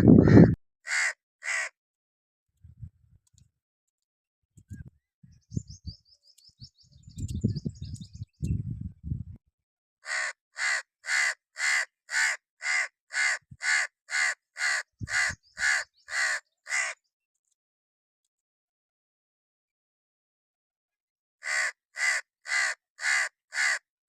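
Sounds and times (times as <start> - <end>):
low thumps and rumbles: 0.0 - 0.6
crow cawing: 0.0 - 1.8, 10.0 - 17.0, 21.4 - 23.8.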